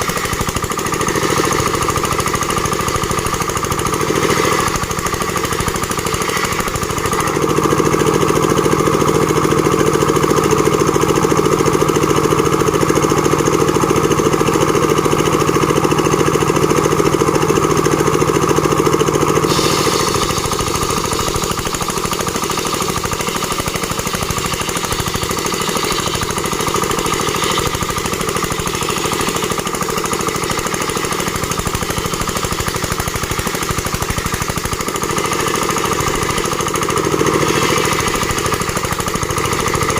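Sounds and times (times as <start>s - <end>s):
machine rattling: 0.0s - 8.1s, 19.5s - 39.9s.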